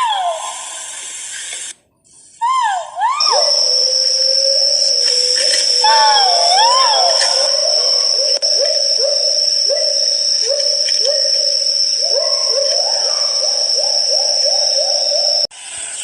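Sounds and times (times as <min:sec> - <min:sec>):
pheasant whistled hoots: 0:02.5 - 0:15.5
high-pitched whine: 0:03.2 - 0:16.0.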